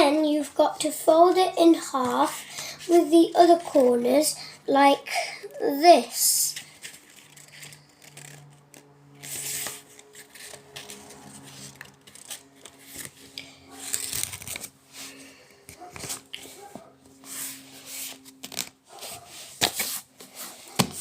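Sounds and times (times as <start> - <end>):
paper rustling and crinkling: 6.5 - 21.0.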